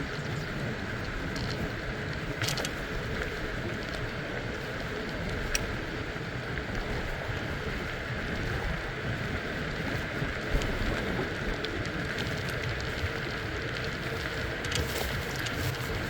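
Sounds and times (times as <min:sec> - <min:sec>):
tyres rolling on road: 0:00.0 - 0:16.0
wind on microphone: 0:00.0 - 0:16.0
faint clicks: 0:00.1 - 0:05.8, 0:10.4 - 0:16.0.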